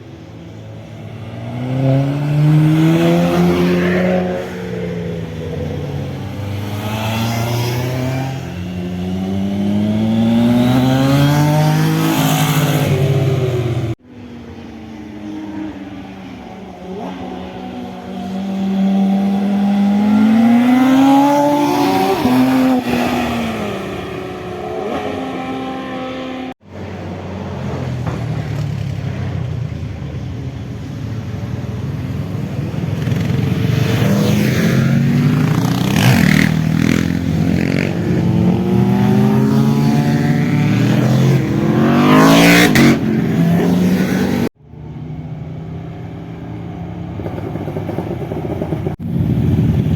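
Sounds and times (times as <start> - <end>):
motorcycle engines accelerating: 0.0 - 49.9
motorcycle passing by: 0.5 - 14.0, 15.5 - 26.6, 32.0 - 44.5.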